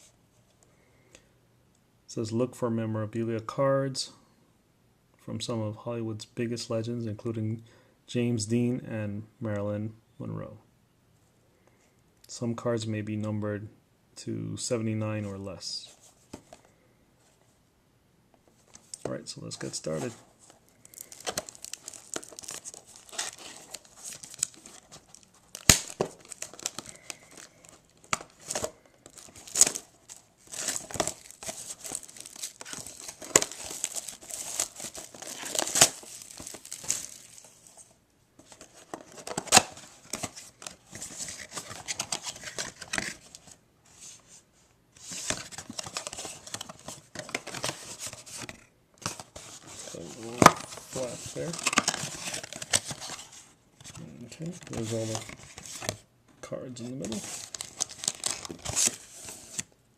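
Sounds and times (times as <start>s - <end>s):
plastic wrapping tearing and crinkling: 20.7s - 37.6s, 57.1s - 59.6s.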